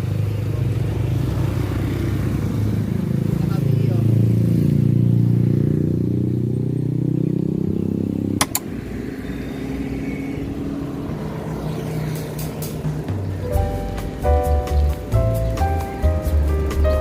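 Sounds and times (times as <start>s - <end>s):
vehicle engine running: 0.0s - 17.0s
sharp click: 8.4s - 8.7s.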